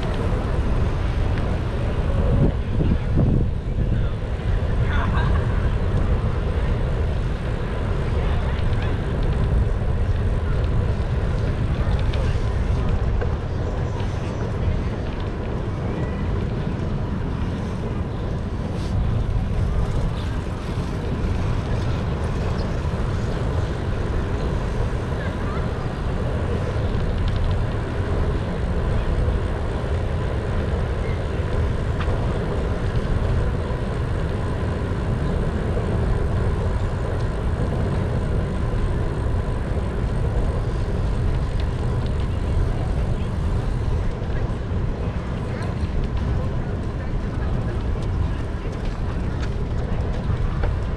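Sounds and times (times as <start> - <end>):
bicycle road vibration: 0.0 - 50.9
passing traffic: 0.0 - 50.9
wind on microphone: 0.0 - 50.9.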